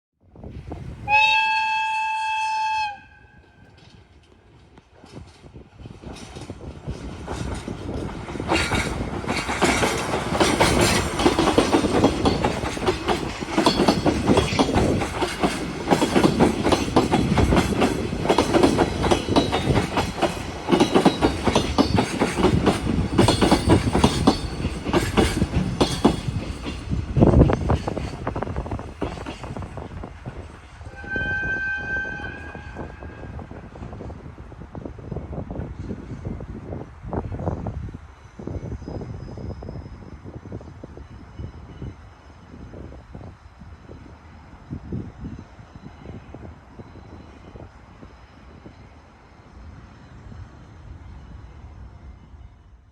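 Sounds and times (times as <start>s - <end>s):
train horn: 1.1s - 3.9s, 30.8s - 33.6s
train wheels clattering on rails: 3.4s - 30.9s.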